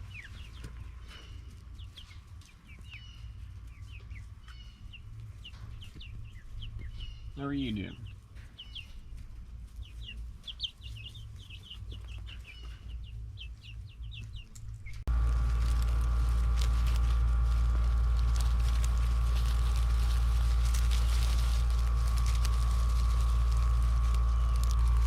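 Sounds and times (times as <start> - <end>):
baby guinea fowl peeping: 0.0 - 25.0
loud mechanical hum: 14.6 - 25.0.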